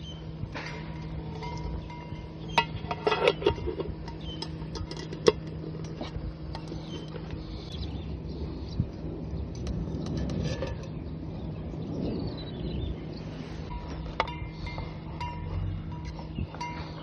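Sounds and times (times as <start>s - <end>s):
low hum: 0.0s - 17.0s
metal cookware clinking: 0.8s - 6.8s.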